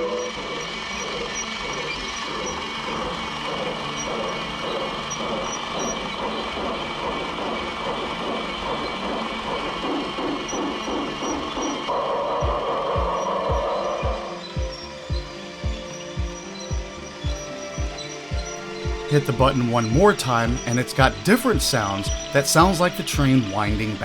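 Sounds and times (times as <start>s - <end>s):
steam train sound effects: 18.8s - 24.0s.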